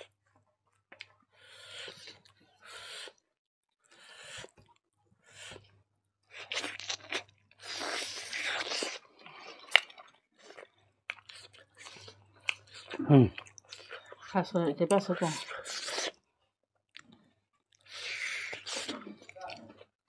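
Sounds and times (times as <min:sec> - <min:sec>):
chewing and biting food: 0:06.3 - 0:16.2, 0:16.9 - 0:19.9.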